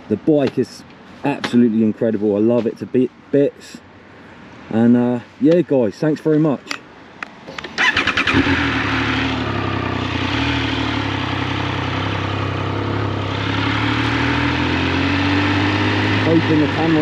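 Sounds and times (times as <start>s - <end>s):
motorcycle starter cranking: 7.5s - 9.0s
motorcycle engine running: 7.6s - 17.0s.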